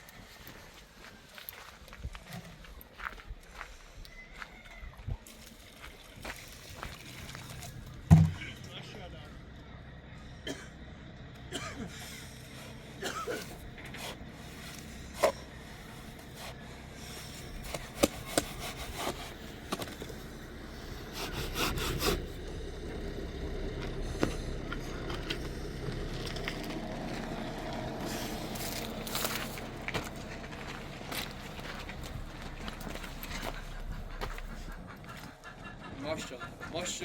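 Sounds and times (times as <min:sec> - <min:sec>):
sharp knocks on wood: 0:08.1 - 0:08.4
wood scraping and rubbing: 0:13.8 - 0:20.2, 0:20.8 - 0:22.4.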